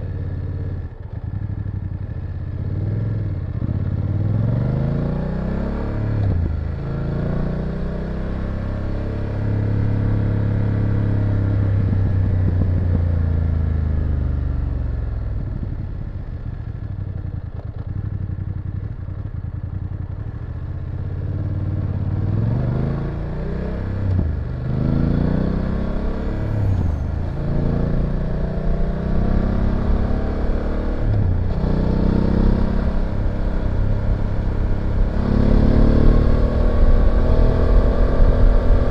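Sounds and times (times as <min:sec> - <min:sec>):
motorcycle engine revving: 0:16.9 - 0:38.9.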